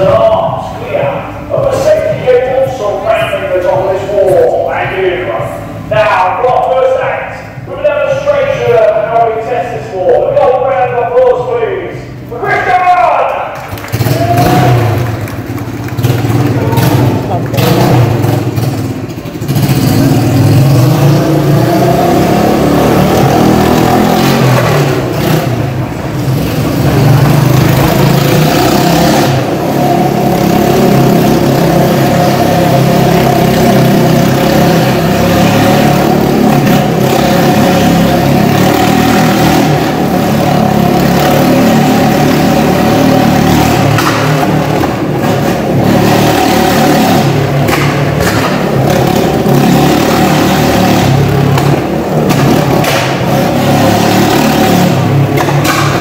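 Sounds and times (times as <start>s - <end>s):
motorcycle engine revving: 13.4s - 56.0s.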